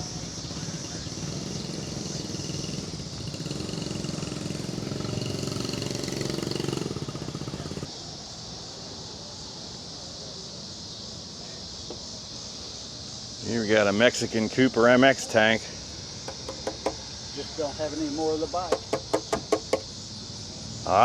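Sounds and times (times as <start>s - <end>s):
motorcycle engine running: 0.0s - 7.9s, 15.8s - 20.1s
high insect buzz: 0.0s - 21.0s.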